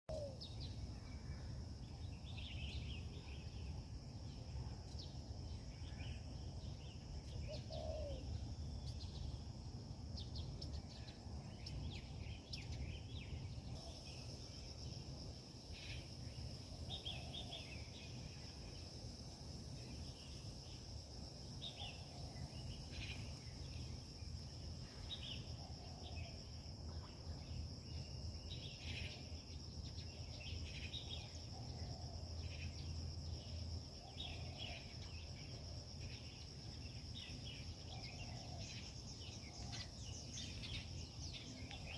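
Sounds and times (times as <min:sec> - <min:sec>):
birds chirping: 0:01.8 - 0:14.8.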